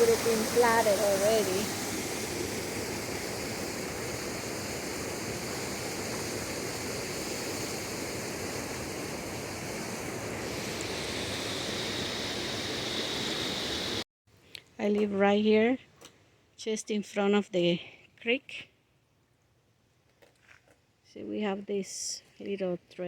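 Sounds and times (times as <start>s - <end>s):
creek rushing: 0.0s - 4.8s.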